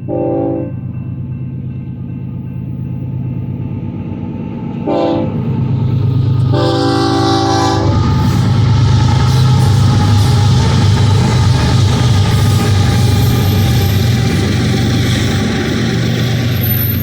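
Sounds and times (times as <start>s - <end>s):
locomotive engine rumble: 0.0s - 17.0s
locomotive horn blasts: 0.1s - 0.8s, 4.8s - 5.4s, 6.4s - 8.6s.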